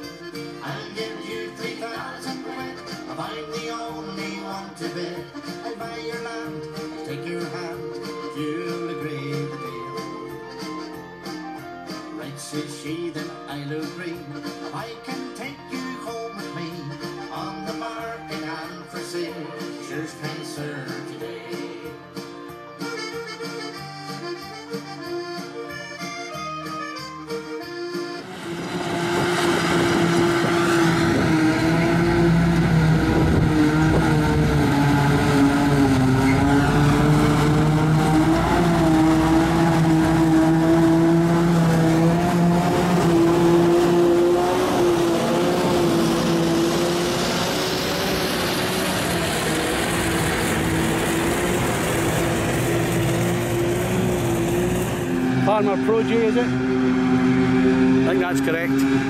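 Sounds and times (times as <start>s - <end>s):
tractor engine running: 28.2s - 59.0s.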